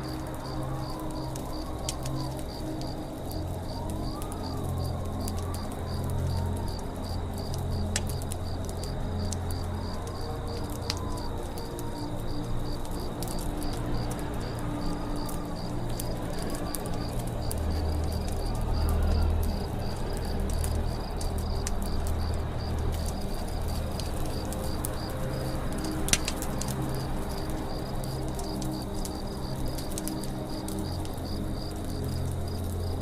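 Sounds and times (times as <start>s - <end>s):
campfire crackling: 0.0s - 33.0s.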